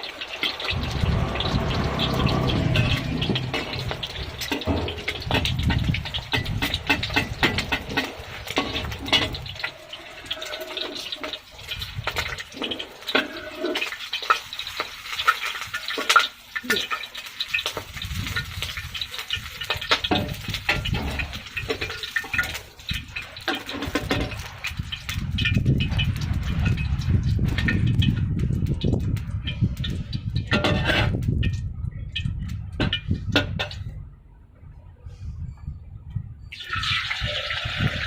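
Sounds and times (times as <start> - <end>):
eggs sizzling in oil: 0.0 - 28.2.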